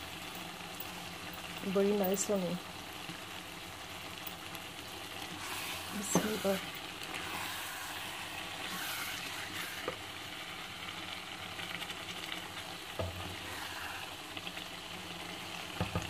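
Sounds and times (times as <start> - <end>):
curry sizzling in a pot: 0.0 - 16.0
wooden spoon stirring: 5.2 - 10.1, 13.0 - 14.3.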